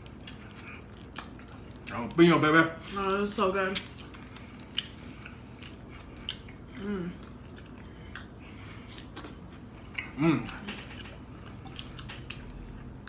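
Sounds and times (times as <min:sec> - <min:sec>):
chewing and biting sandwich: 0:03.8 - 0:13.0
person humming mm: 0:06.8 - 0:07.2.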